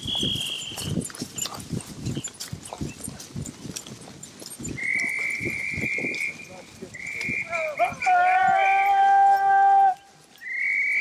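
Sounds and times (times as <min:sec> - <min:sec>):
horse hooves thudding: 0:00.0 - 0:11.0
dog-training whistle blasts: 0:04.8 - 0:09.2, 0:10.4 - 0:11.0.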